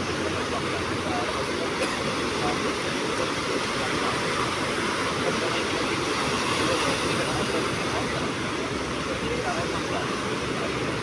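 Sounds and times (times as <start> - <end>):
sea surf washing on shore: 0.0 - 11.0.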